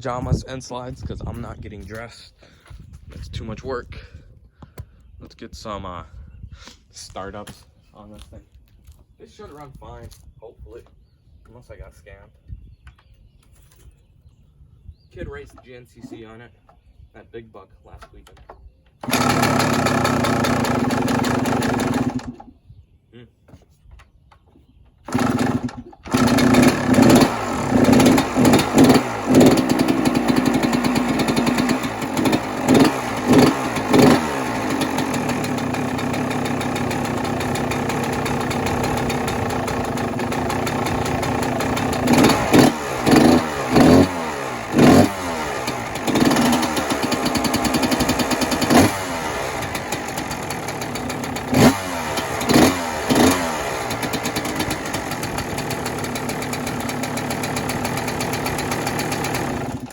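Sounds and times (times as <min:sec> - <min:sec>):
dirt bike engine idling: 0:19.0 - 0:22.5, 0:25.1 - 0:59.9
quick throttle blips: 0:19.0 - 0:22.5, 0:25.1 - 0:59.9.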